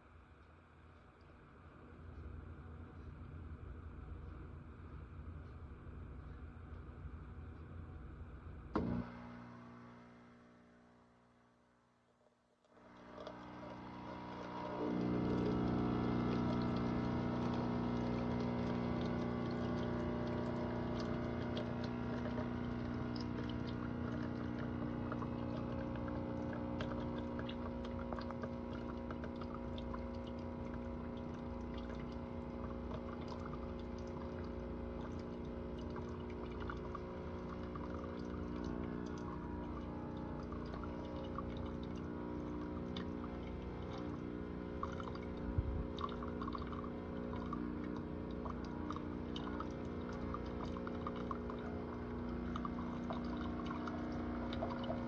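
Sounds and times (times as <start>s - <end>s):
coffee maker pump humming: 8.8s - 11.0s, 12.7s - 55.0s
hot liquid pouring into a cup: 12.8s - 55.0s.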